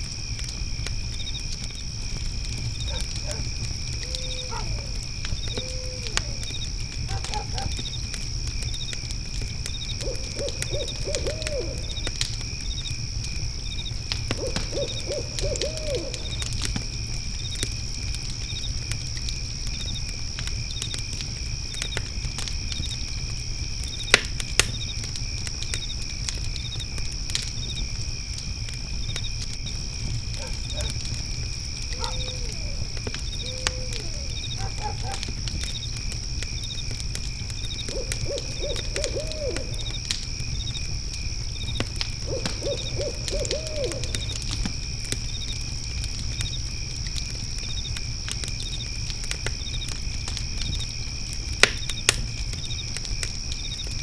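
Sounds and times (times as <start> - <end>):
crickets trilling and chirping: 0.0 - 54.0
fire crackling and popping: 0.0 - 54.0
low hoot: 2.9 - 7.8, 10.0 - 12.1, 14.4 - 16.5, 30.4 - 31.0, 31.9 - 35.3, 37.8 - 40.0, 42.2 - 44.5.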